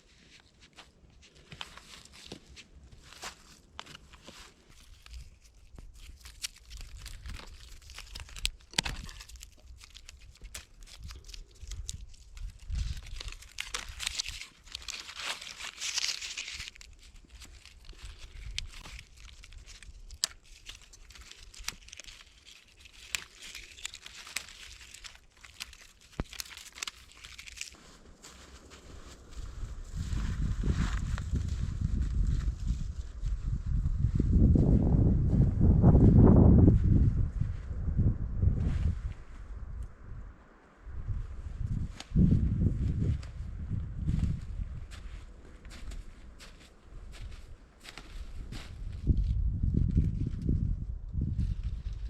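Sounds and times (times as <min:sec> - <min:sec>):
crinkling and crunching handling: 0:00.0 - 0:33.3, 0:41.8 - 0:52.0
small sharp clicks and snaps: 0:05.0 - 0:27.8.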